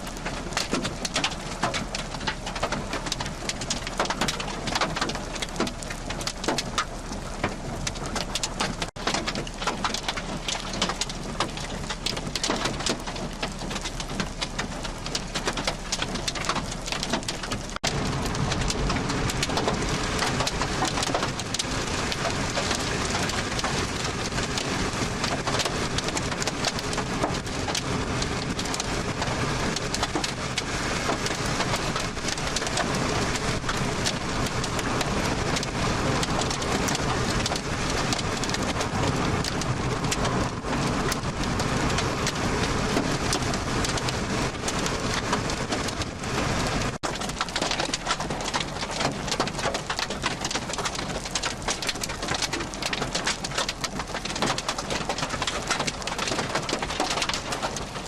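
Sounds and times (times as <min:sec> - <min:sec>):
heavy rain falling: 0:00.0 - 0:58.0
deep rumble: 0:11.1 - 0:47.1.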